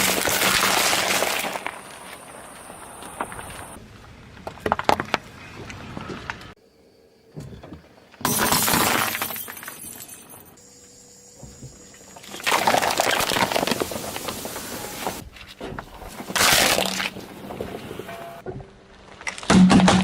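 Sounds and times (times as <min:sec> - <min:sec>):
objects crunching under car tyre: 0:00.0 - 0:06.6, 0:12.2 - 0:20.0.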